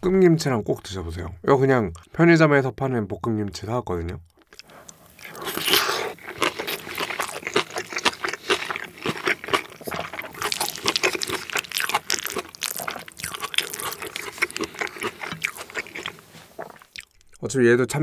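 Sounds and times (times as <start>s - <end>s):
wet chewing clicks and smacks: 3.5s - 17.6s.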